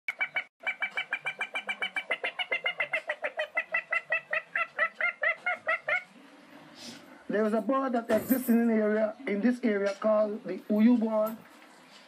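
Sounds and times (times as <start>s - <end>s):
rapid bird-like cackling: 0.1s - 6.2s.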